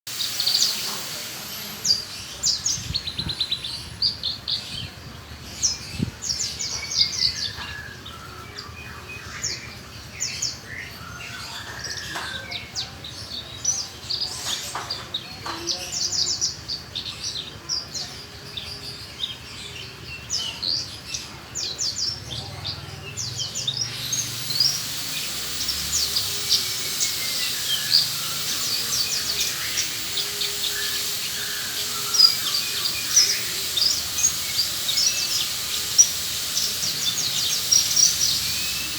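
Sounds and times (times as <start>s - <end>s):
bush lark singing chirps and trills: 0.1s - 38.9s.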